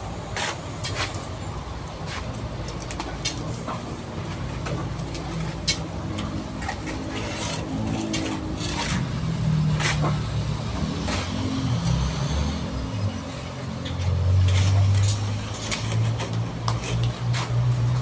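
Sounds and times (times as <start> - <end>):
sharp clicks and scrapes: 4.6 - 10.3, 13.8 - 18.0.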